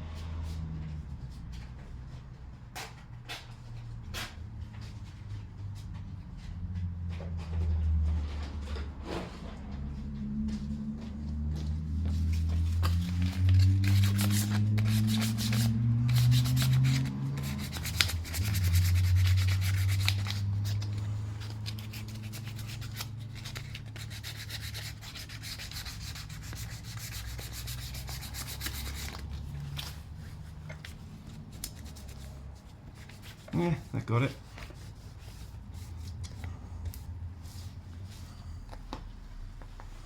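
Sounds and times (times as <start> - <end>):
sandpaper scraping metal: 12.8 - 29.7.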